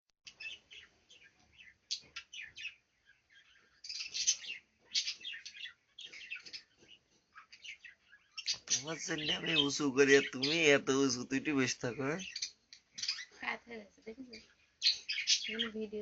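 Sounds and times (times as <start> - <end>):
small birds chirping: 0.2 - 16.0.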